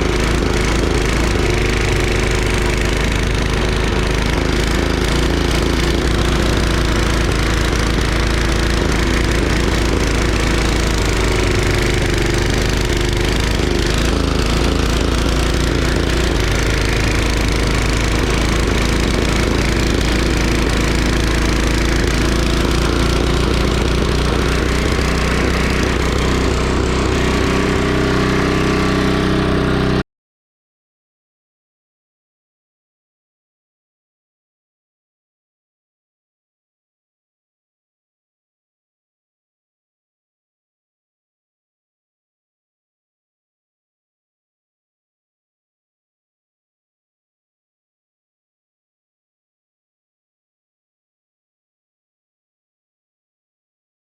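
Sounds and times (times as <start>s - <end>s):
snowblower engine running: 0.0s - 30.0s.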